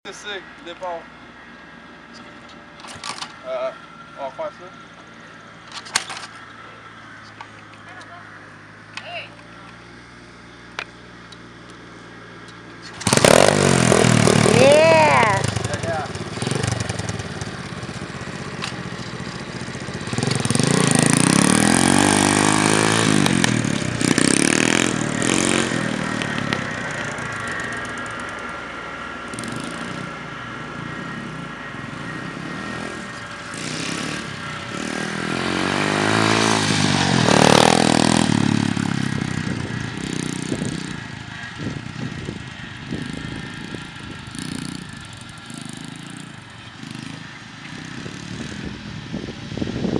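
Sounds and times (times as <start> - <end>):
pit bike engine revving: 12.1 - 49.9.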